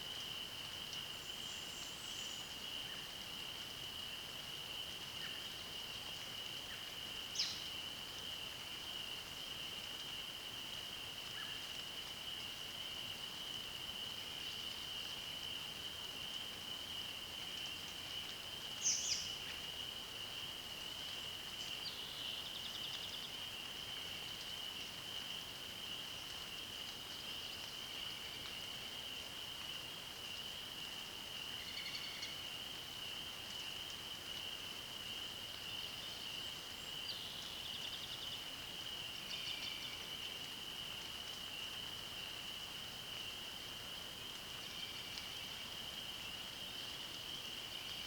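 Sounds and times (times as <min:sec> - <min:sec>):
chorus of frogs or insects: 0:00.0 - 0:48.0
songbirds singing: 0:18.8 - 0:19.4.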